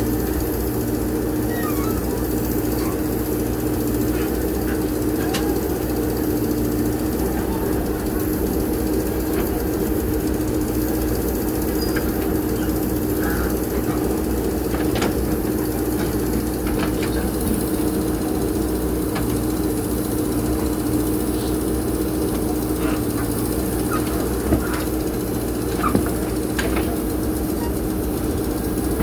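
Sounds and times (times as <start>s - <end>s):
diesel engine running: 0.0s - 29.0s
faint knocks and clanks: 11.8s - 17.8s, 22.4s - 27.8s.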